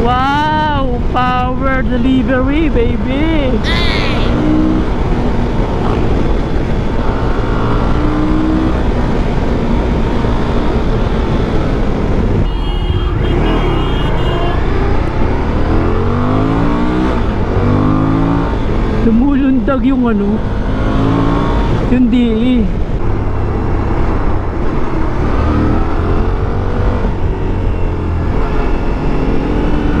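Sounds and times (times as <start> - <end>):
wind rush: 0.8 - 19.6
motorcycle engine: 2.5 - 30.0.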